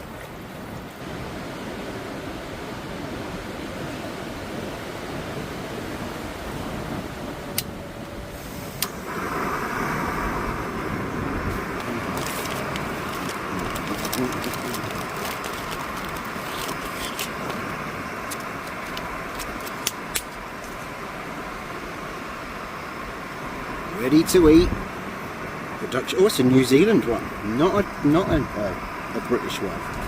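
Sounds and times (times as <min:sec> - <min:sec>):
rain: 0:00.0 - 0:30.0
wind: 0:00.0 - 0:30.0
gas burner hissing: 0:07.6 - 0:30.0.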